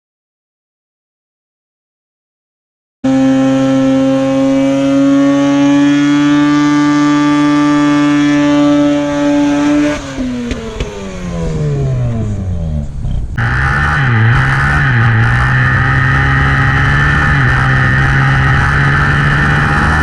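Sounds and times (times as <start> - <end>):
rotary engine revving: 3.1 - 20.0.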